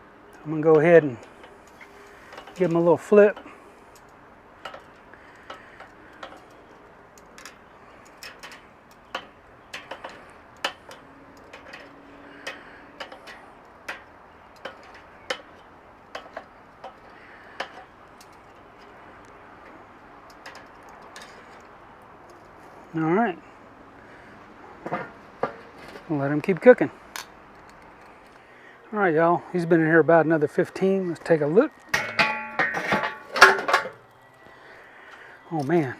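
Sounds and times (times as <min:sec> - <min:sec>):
metal tongs clicking on grill grate: 0:00.3 - 0:22.5.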